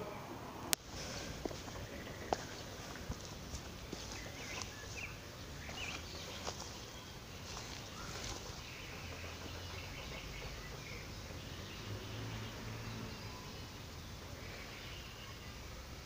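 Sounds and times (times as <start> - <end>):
footsteps on dirt path: 0.8 - 11.8
bird chirps: 0.9 - 16.0.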